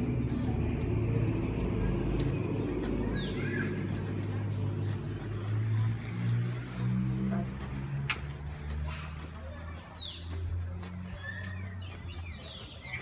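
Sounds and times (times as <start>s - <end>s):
bird chirping: 2.7s - 7.4s.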